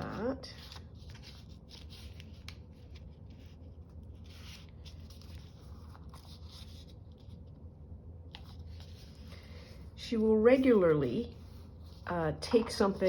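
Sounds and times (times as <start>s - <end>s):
paper rustling and sliding: 0.0s - 7.5s, 8.3s - 9.9s.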